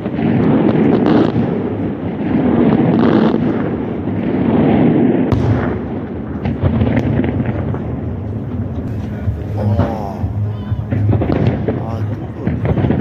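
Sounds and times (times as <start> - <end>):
fireworks banging: 0.0 - 10.3.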